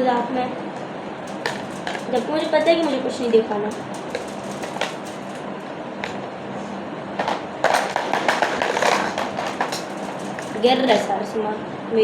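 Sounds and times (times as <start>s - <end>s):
plastic pieces rattling and clattering: 1.3s - 6.2s, 7.2s - 11.2s.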